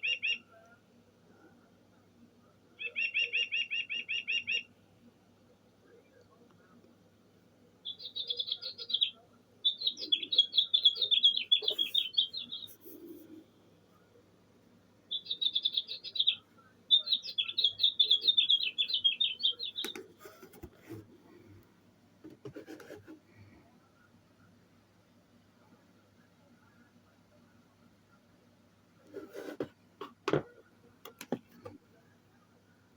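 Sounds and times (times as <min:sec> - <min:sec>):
recorded songbird trill: 0:00.0 - 0:00.7, 0:02.8 - 0:04.8, 0:07.8 - 0:13.4, 0:15.1 - 0:20.1.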